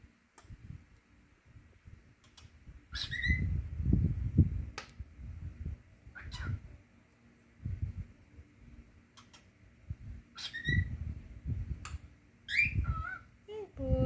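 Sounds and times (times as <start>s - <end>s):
cockatiel whistled chirp: 3.0s - 3.5s, 10.4s - 10.9s, 12.5s - 13.2s.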